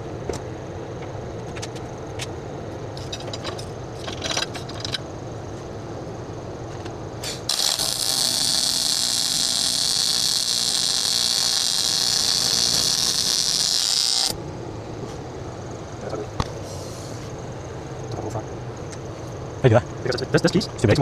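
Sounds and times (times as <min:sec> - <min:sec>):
rotary power tool whining: 0:07.5 - 0:14.4.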